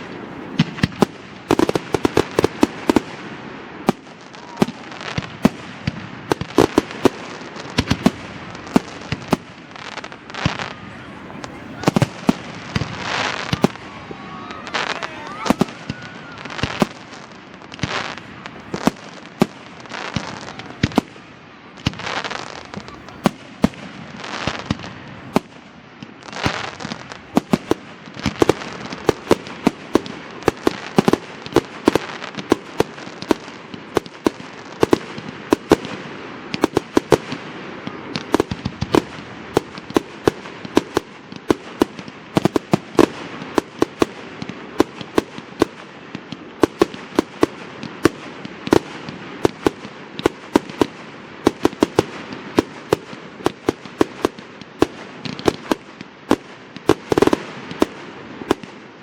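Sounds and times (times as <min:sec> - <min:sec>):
firework hissing whooshes: 0:00.0 - 0:03.0
firework bangs and cracks: 0:00.0 - 0:59.0.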